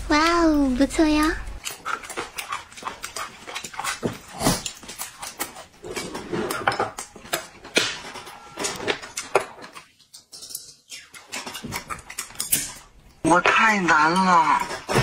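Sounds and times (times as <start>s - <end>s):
dishes and cutlery clinking: 5.9s - 15.0s.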